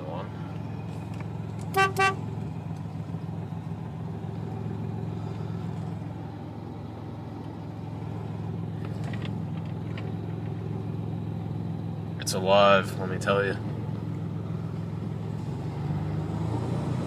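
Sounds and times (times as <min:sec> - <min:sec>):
truck engine running: 0:00.0 - 0:17.0
truck horn toots: 0:01.7 - 0:02.4.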